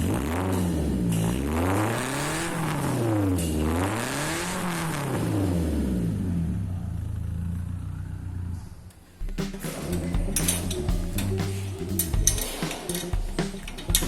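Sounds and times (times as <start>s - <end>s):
car engine revving: 0.0s - 14.0s
car engine idling: 5.9s - 14.0s.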